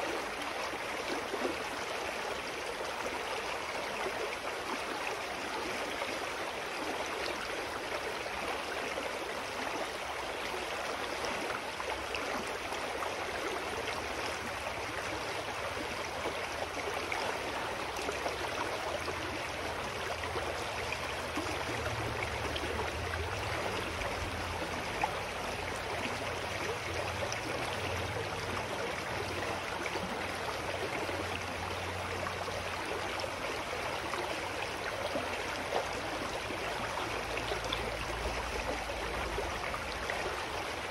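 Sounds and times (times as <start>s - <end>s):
mountain stream flowing: 0.0s - 40.9s.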